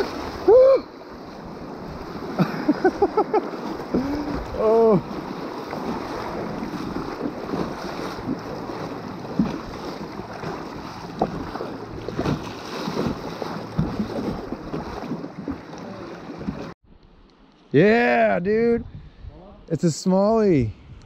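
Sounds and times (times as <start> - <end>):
river water splashing against hull: 0.0 - 17.2
wind buffeting microphone: 18.5 - 19.7, 20.4 - 21.0.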